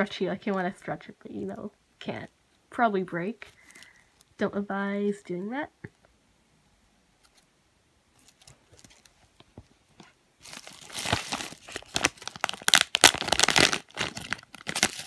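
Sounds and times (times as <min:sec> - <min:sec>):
packaging crinkling and tearing: 0:08.2 - 0:09.2, 0:10.4 - 0:15.0.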